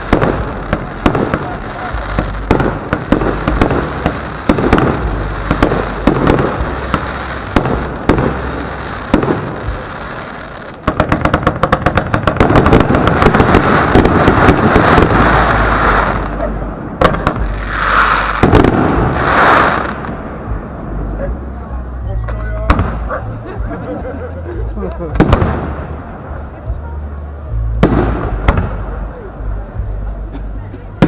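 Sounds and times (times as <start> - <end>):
firework shells bursting: 0.0 - 16.4
rapid run of firework cracks: 0.0 - 16.4, 17.0 - 20.7, 25.1 - 26.0, 27.8 - 28.8.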